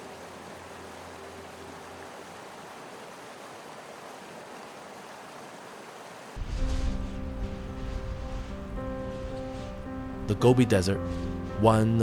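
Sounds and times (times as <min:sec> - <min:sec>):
faint background music: 0:06.4 - 0:12.0
steady rushing ambient noise: 0:06.4 - 0:12.0.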